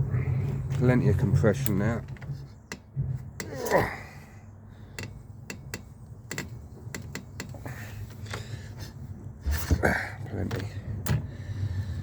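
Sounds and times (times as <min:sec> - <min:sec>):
clicks and knocks of hands working: 0:01.6 - 0:03.8, 0:04.9 - 0:08.4.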